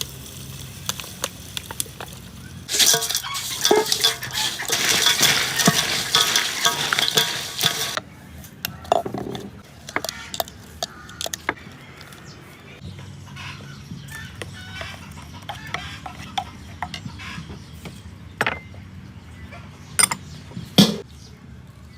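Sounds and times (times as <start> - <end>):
crab sizzling in a hot pan: 0.0 - 8.0
metal utensil clinking and scraping: 2.7 - 8.0.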